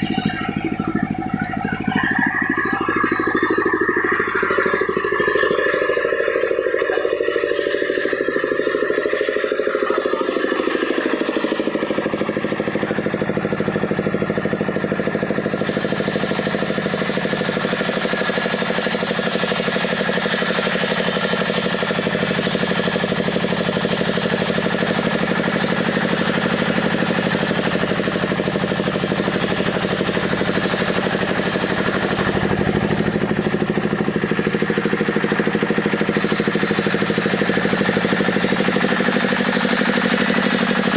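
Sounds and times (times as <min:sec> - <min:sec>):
wood saw engine running: 0:00.0 - 0:40.9.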